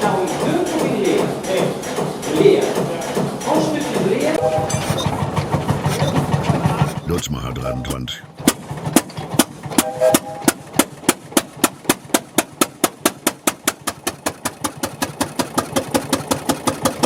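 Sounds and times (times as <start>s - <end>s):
diesel engine running: 0.9s - 12.6s.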